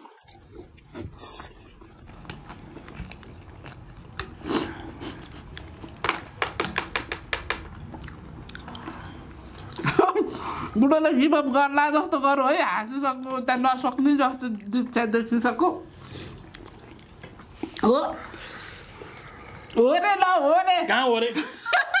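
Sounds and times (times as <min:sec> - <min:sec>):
people chewing with mouth clicks: 0:00.0 - 0:10.8, 0:13.2 - 0:15.1, 0:15.9 - 0:19.8.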